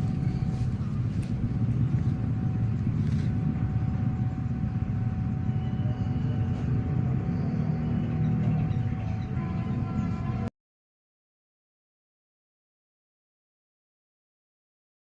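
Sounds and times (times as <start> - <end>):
vehicle engine running: 0.0 - 10.5.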